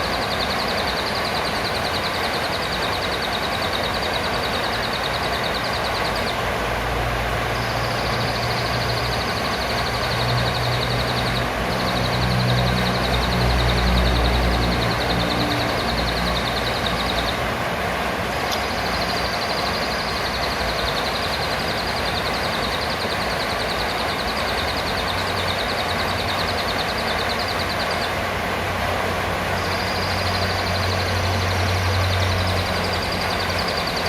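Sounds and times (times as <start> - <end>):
parrot high rapid trill: 0.0 - 6.6, 7.6 - 17.6, 18.7 - 28.2.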